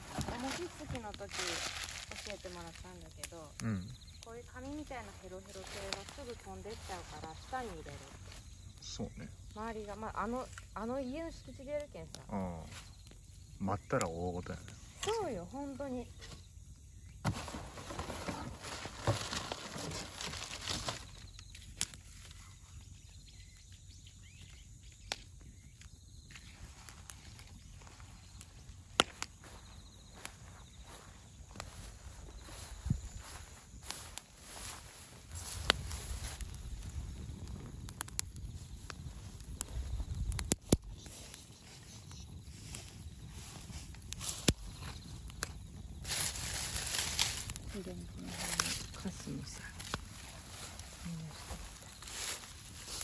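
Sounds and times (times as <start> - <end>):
bonfire crackling: 0.0 - 53.0
low fire rumble: 0.0 - 53.0
sharp fire pops: 24.9 - 30.4, 35.2 - 50.8.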